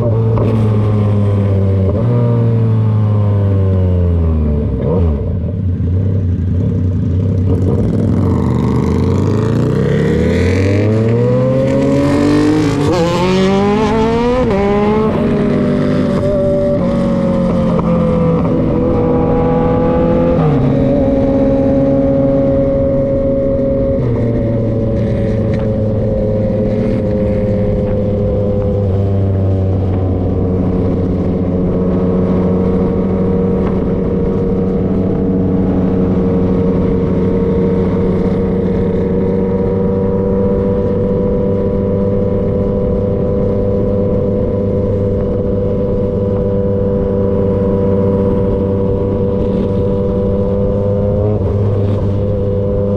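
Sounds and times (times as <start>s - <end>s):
motorcycle engine running: 13.7s - 52.9s.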